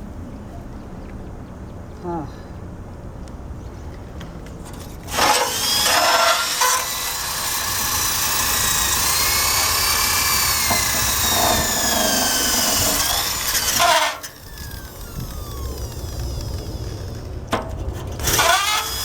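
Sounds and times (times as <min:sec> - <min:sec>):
power drill wire brush on metal: 0:05.0 - 0:19.0.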